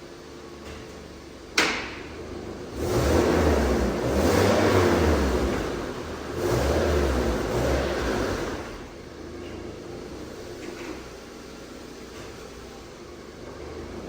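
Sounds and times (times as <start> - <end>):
vehicle engine surging: 2.3 - 9.0.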